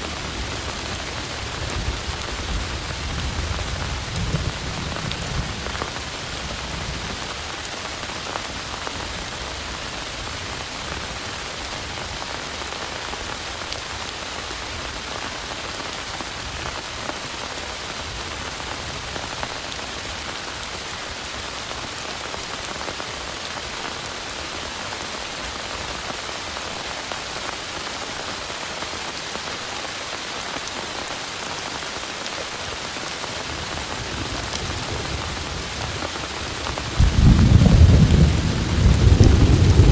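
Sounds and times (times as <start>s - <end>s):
heavy rain falling: 0.0s - 39.9s
low rumble of thunder: 0.1s - 7.3s, 33.4s - 39.9s.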